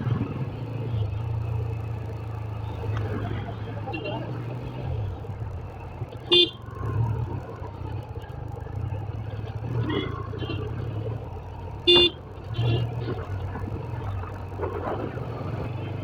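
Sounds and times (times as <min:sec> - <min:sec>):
motorcycle engine: 0:00.0 - 0:16.0
motorcycle horn beeps: 0:06.3 - 0:06.6, 0:11.9 - 0:12.9.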